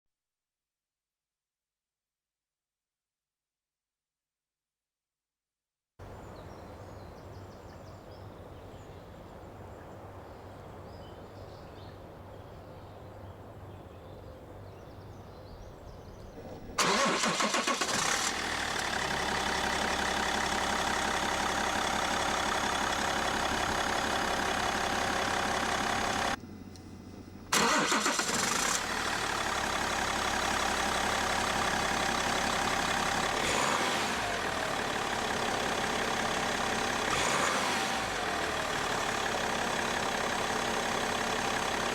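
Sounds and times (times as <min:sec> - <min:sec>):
diesel engine starting and idling: 0:15.8 - 0:26.4, 0:27.4 - 0:41.9.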